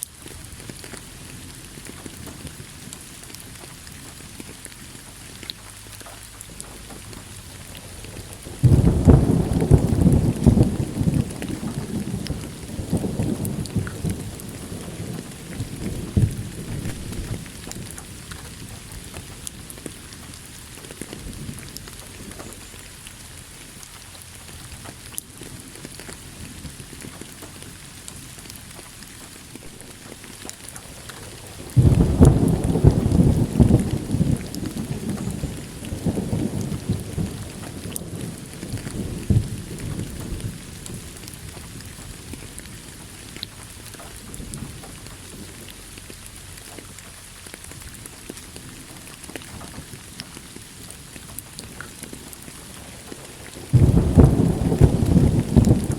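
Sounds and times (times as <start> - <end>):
steady rain: 0.0 - 55.9
thunder rumbling: 6.4 - 22.8, 29.6 - 46.7, 51.6 - 55.9.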